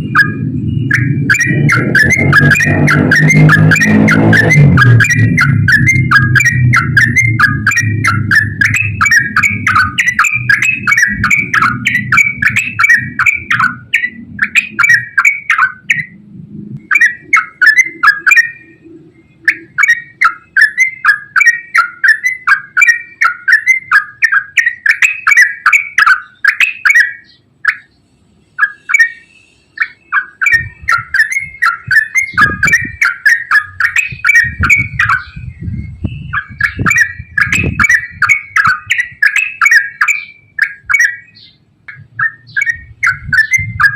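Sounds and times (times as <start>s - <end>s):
low rumble: 0.0s - 15.0s, 15.9s - 16.9s
bird chattering song: 0.0s - 43.9s.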